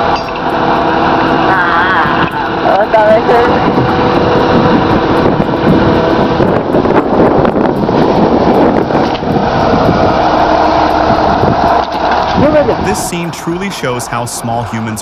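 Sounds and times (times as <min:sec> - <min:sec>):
heavy tractor engines running: 0:00.0 - 0:15.0.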